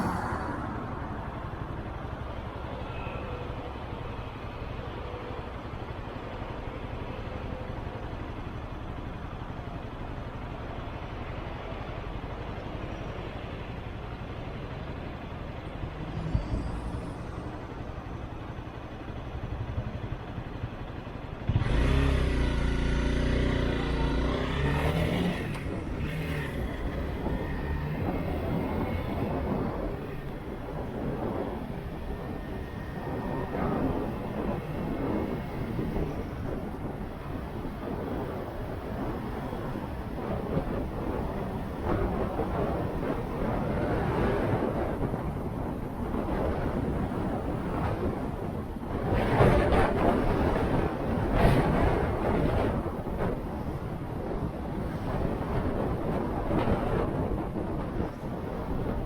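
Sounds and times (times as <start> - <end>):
road and wind noise: 0.0 - 59.0
motorcycle engine running: 17.4 - 37.9.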